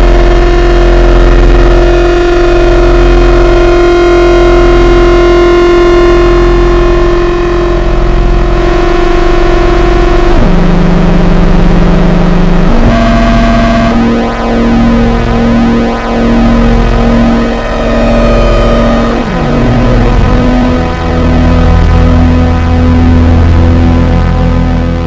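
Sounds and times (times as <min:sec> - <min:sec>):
buzzy synthesizer drone: 0:00.0 - 0:25.0
steady low hum: 0:04.6 - 0:24.8.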